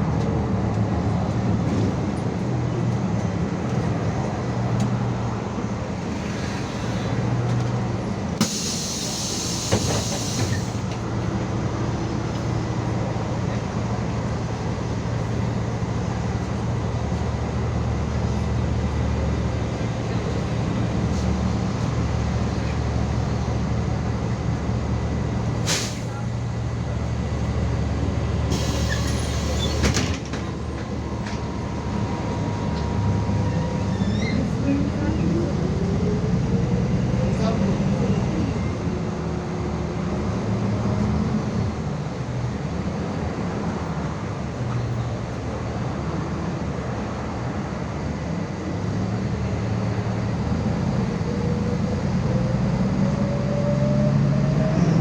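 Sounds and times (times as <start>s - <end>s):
bus diesel engine running: 0.0s - 55.0s
compressed air hiss: 8.4s - 10.8s, 25.6s - 26.1s.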